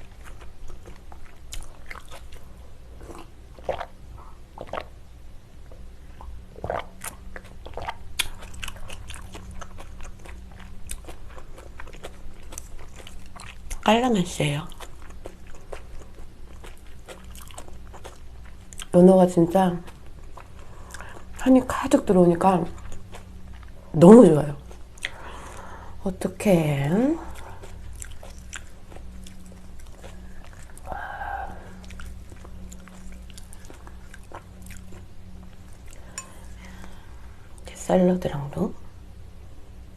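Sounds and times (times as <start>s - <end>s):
person chewing food: 0.0s - 5.0s, 5.6s - 13.9s, 14.7s - 18.9s, 19.8s - 21.4s, 22.8s - 23.8s, 24.6s - 25.9s, 27.2s - 37.7s.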